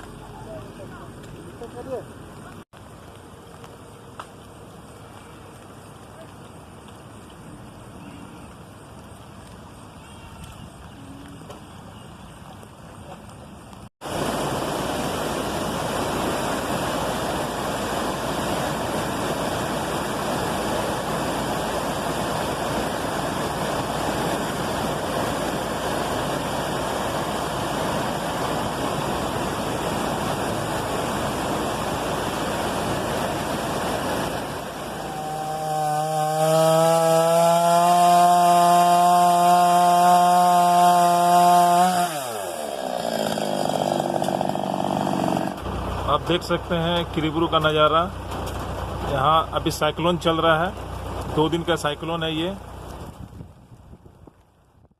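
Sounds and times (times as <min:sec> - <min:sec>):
heavy rain pouring: 0:14.0 - 0:36.4, 0:45.6 - 0:53.0
engine drone: 0:14.0 - 0:53.0.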